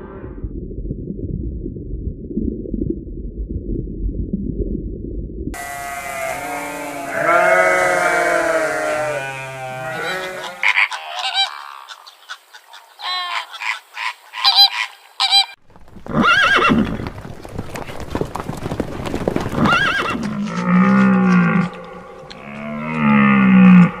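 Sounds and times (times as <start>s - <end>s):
long low animal calls: 5.6s - 17.1s, 19.4s - 24.0s.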